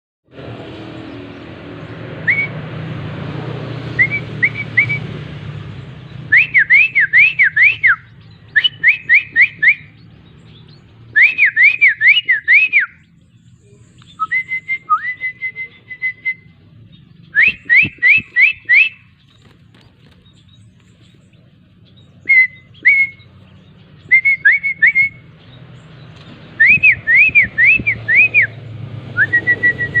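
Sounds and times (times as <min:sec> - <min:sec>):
shrike whistled calls: 0:06.3 - 0:19.5, 0:21.9 - 0:25.6, 0:26.5 - 0:28.6.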